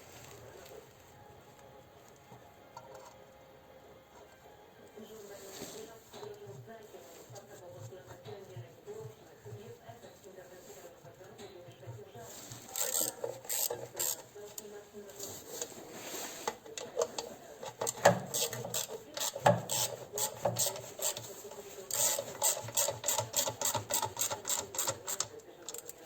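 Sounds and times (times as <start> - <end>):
hand tool scraping: 12.3 - 14.3, 15.2 - 25.2.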